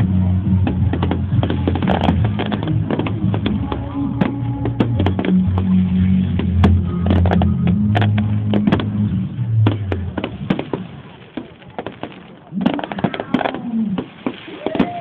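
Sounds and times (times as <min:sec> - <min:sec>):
music with steady bass: 0:00.0 - 0:10.8
fireworks popping and banging: 0:00.0 - 0:15.0
crackling pops: 0:00.6 - 0:15.0.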